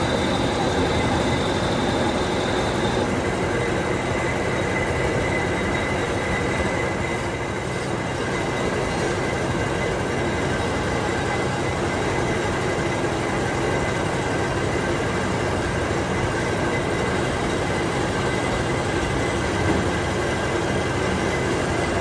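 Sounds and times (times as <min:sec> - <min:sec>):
whining tones: 0:00.0 - 0:12.6
workshop machine running: 0:00.0 - 0:22.0.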